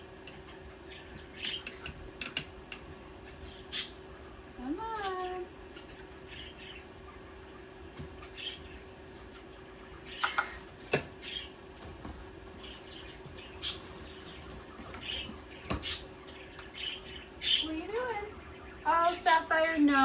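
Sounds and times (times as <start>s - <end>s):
parakeets chirping and squeaking: 0.3s - 20.0s
parakeet sharp peeps: 3.4s - 4.1s, 4.8s - 7.1s, 8.1s - 11.6s, 12.6s - 20.0s.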